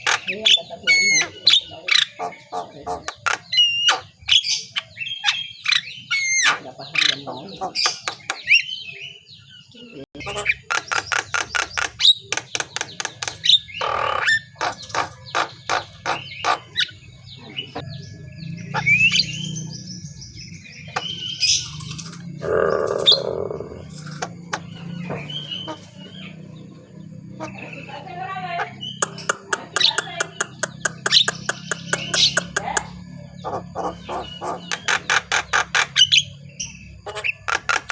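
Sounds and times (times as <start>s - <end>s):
myna calling: 0.0s - 8.6s, 9.8s - 12.2s, 13.6s - 19.8s, 20.7s - 37.9s
bird warbling chatter: 0.0s - 37.9s
bird screech: 21.4s - 24.3s.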